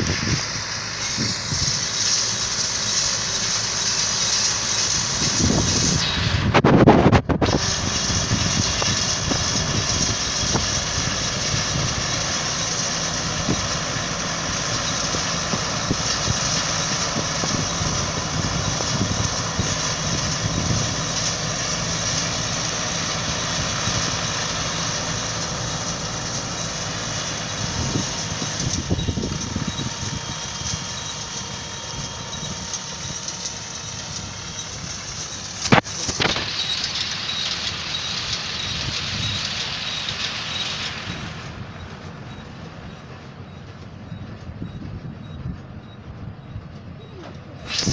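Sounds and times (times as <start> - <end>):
hay baler machinery: 0.0 - 47.9
tractor engine running: 0.0 - 47.9.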